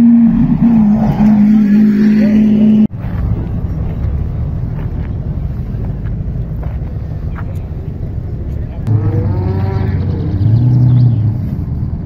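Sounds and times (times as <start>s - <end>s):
engine drone: 0.0s - 12.0s
sports car engines idling: 3.0s - 9.3s.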